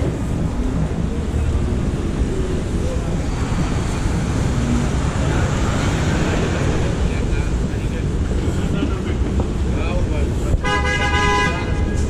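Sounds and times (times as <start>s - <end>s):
low rumble with rushing hiss: 0.0s - 10.6s.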